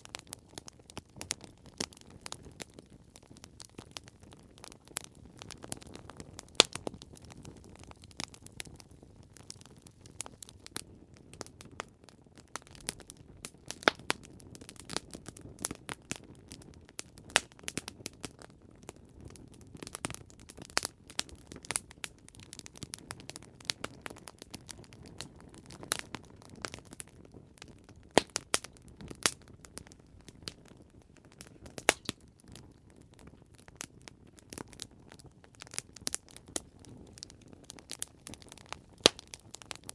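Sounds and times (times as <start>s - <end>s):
burning wood popping: 0.0s - 39.9s.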